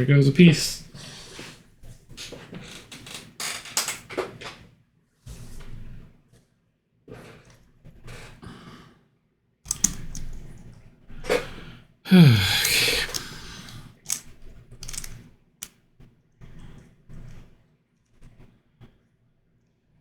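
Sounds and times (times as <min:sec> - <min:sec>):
plastic puzzle clicks and rattles: 0:09.7 - 0:10.4, 0:14.8 - 0:15.2
loud breathy sigh: 0:12.1 - 0:14.2.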